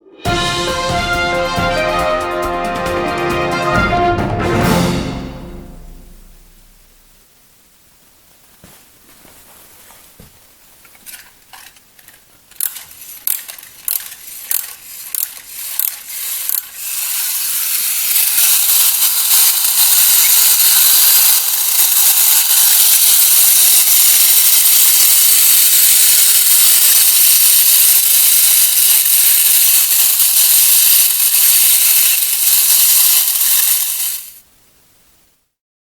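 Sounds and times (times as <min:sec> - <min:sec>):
ratcheting clicks of winding: 0:11.1 - 0:34.4
clockwork motor whirring: 0:11.6 - 0:34.4.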